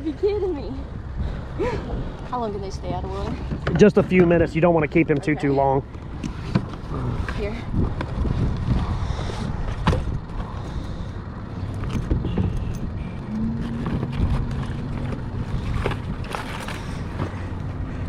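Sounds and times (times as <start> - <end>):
wind buffeting microphone: 5.8 - 18.0
steady hum: 12.2 - 16.2.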